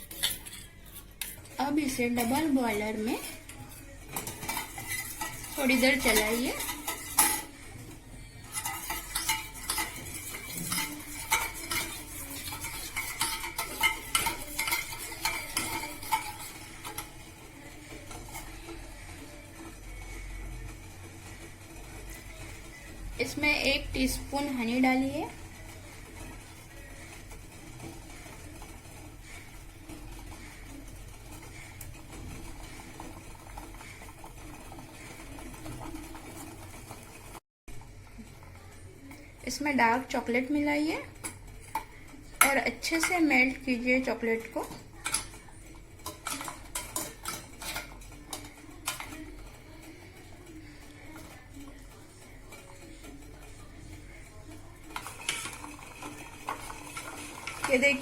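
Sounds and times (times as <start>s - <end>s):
utensil clinking in a bowl: 0.0s - 18.8s, 41.2s - 58.0s
double boiler simmering: 0.0s - 58.0s.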